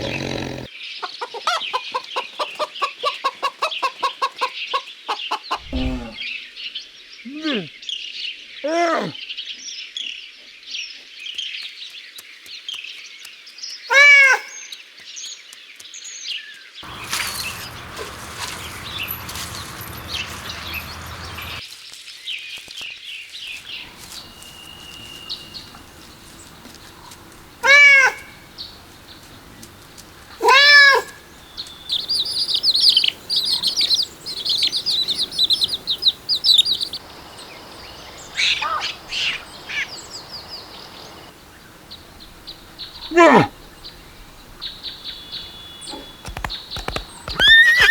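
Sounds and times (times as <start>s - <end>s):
small birds chirping: 0.0s - 9.6s, 10.8s - 21.7s, 22.3s - 47.9s
cat meowing: 30.4s - 31.1s.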